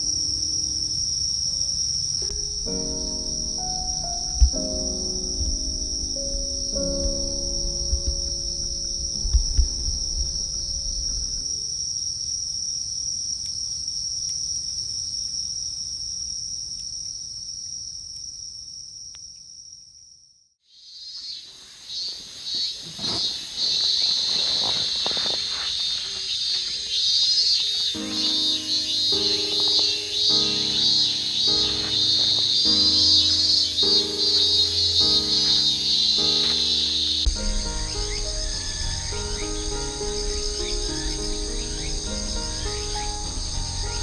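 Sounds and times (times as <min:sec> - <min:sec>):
music: 0:00.0 - 0:11.6, 0:28.0 - 0:44.0
pulsing insect chirps: 0:00.0 - 0:12.2, 0:20.8 - 0:44.0
crickets trilling: 0:00.0 - 0:19.8, 0:20.7 - 0:44.0.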